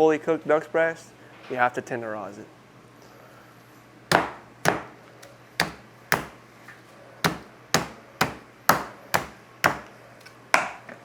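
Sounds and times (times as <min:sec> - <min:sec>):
meat tenderizer pounding meat: 0:04.1 - 0:04.9, 0:05.6 - 0:06.4, 0:07.2 - 0:09.9.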